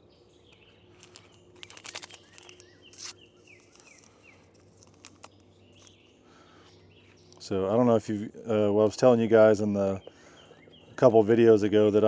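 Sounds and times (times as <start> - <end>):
bird chirping: 0.0 - 7.7, 9.8 - 11.3
lid being unscrewed: 1.0 - 5.9.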